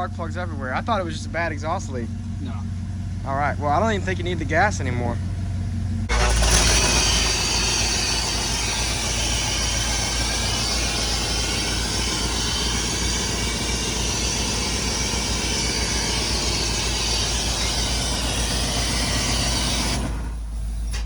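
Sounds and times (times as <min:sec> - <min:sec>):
car engine running: 0:00.0 - 0:21.0
hiss: 0:06.1 - 0:21.0.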